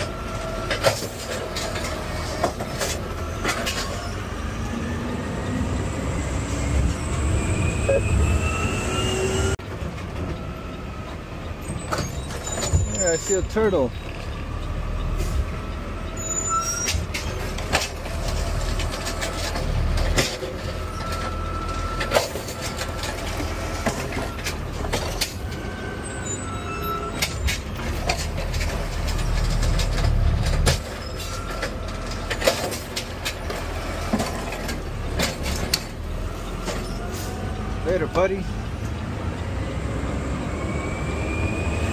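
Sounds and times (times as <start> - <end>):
truck knocks and rattles: 0.0 - 4.3, 16.7 - 25.7, 27.0 - 37.2.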